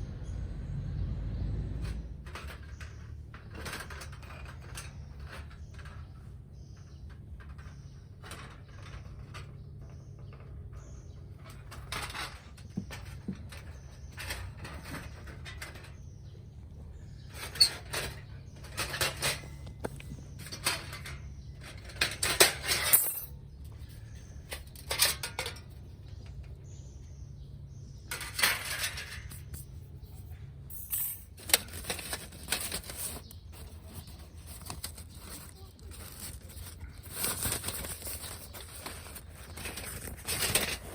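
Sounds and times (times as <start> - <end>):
metal pieces clinking: 20.4 - 25.8, 30.7 - 40.9.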